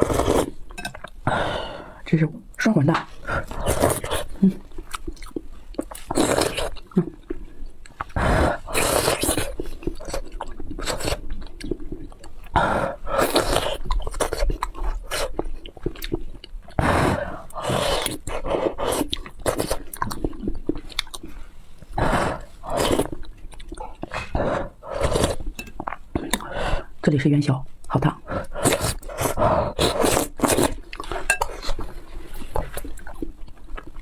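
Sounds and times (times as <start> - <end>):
chewing and biting: 3.4 - 16.8, 17.5 - 21.4, 28.4 - 34.0.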